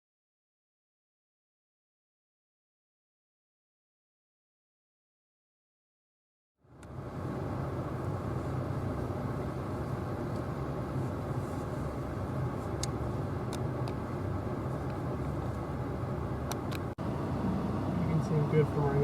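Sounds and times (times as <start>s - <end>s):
car engine rumbling: 6.6s - 19.0s.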